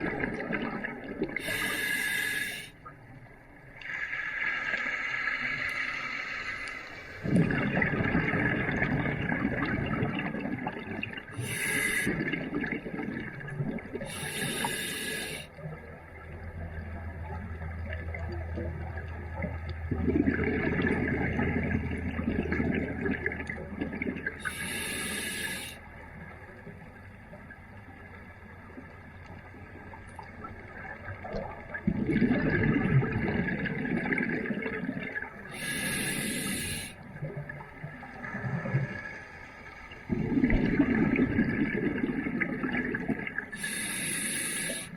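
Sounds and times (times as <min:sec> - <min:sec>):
rushes of exhaled bubbles: 0:00.0 - 0:02.4, 0:07.2 - 0:15.4, 0:16.7 - 0:25.2, 0:30.8 - 0:39.1, 0:40.1 - 0:44.9
regulator breathing underwater: 0:01.4 - 0:02.8, 0:11.4 - 0:12.4, 0:14.1 - 0:15.5, 0:24.4 - 0:25.8, 0:35.5 - 0:37.1, 0:43.6 - 0:44.9.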